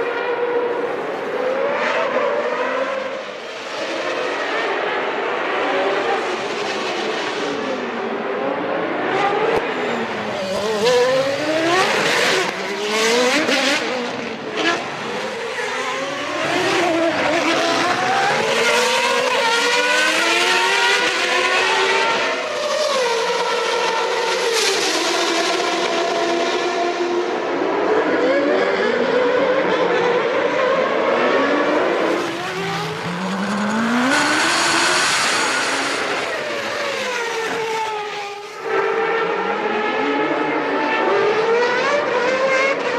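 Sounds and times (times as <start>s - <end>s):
racing car engines revving high: 0.0s - 42.9s
cars passing close by: 30.6s - 42.9s.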